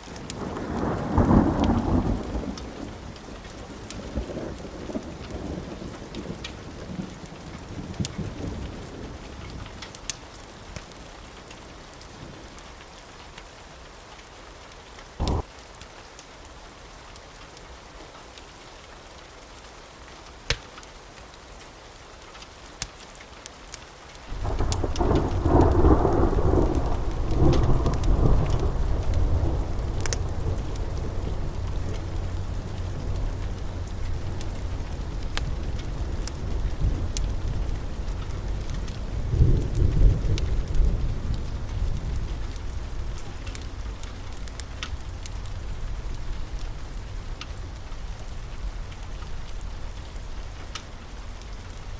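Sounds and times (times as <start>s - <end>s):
steady rain: 0.0s - 51.9s
wood fire crackles: 0.0s - 51.9s
rolling thunder: 0.3s - 9.8s, 15.2s - 15.5s, 24.3s - 50.5s.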